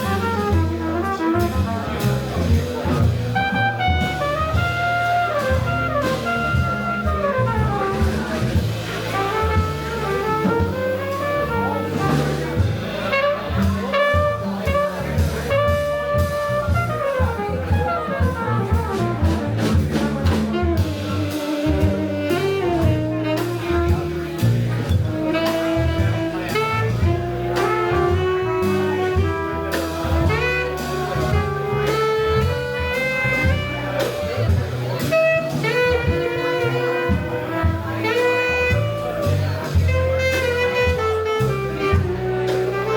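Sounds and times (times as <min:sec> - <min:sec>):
bass line: 0:00.0 - 0:42.9
cymbals: 0:00.0 - 0:42.9
jazz lead melody: 0:00.0 - 0:42.9.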